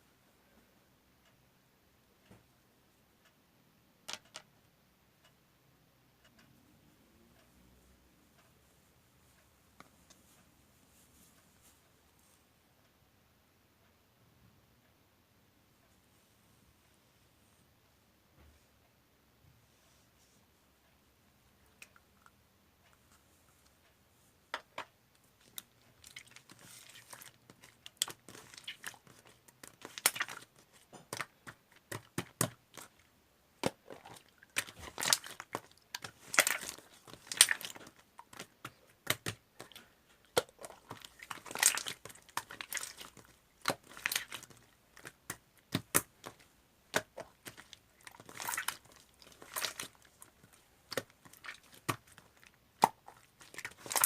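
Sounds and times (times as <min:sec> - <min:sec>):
slime squishing and popping: 0:25.4 - 0:33.0, 0:33.6 - 0:54.0.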